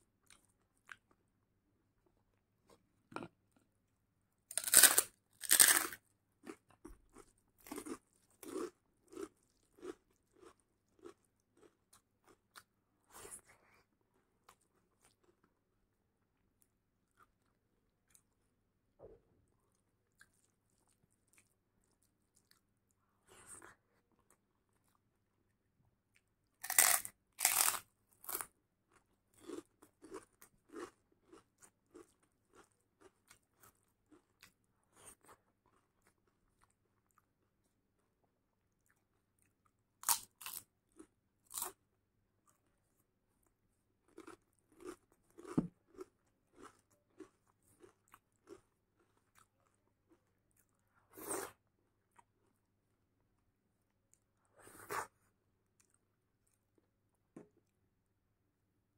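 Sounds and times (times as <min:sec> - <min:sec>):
loud crunching bites: 0:04.5 - 0:06.0, 0:26.6 - 0:28.5.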